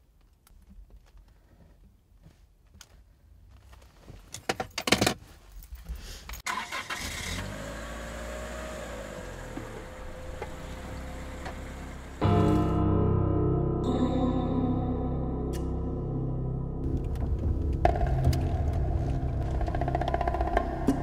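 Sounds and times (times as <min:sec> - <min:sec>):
car engine starting and idling: 0:06.4 - 0:12.8, 0:16.8 - 0:21.0.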